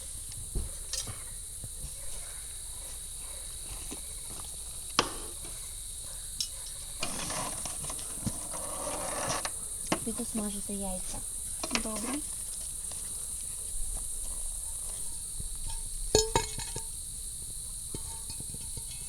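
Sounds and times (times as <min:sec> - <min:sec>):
high-pitched insect chorus: 0:00.0 - 0:19.0
handling noise clatter: 0:06.9 - 0:12.6.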